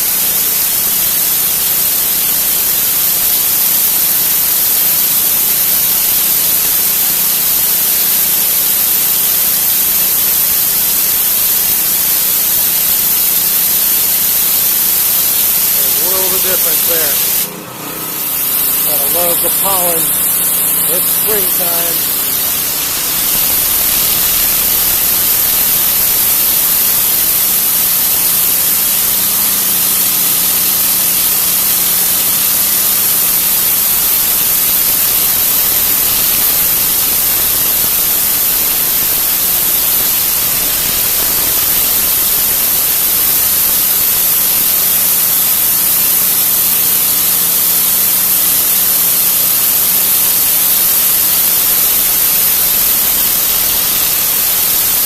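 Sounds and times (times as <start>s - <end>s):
pressure washer spray hissing: 0.0s - 55.0s
motor humming: 15.9s - 26.6s, 37.5s - 43.3s.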